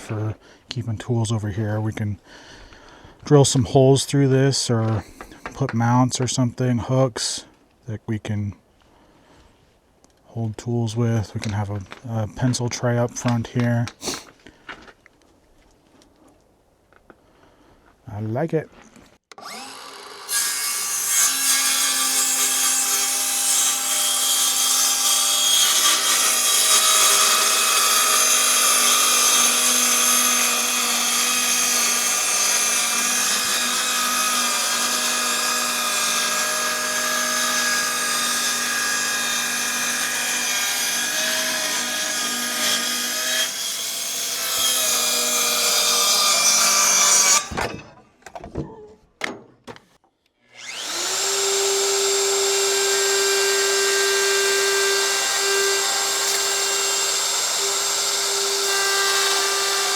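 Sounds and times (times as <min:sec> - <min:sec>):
power tool cutting wood: 0:19.3 - 0:47.7, 0:50.5 - 0:59.9.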